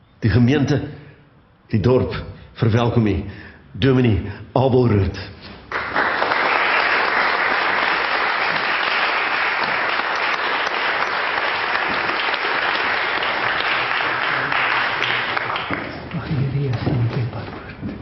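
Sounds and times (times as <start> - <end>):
crowd clapping: 5.7 - 16.8.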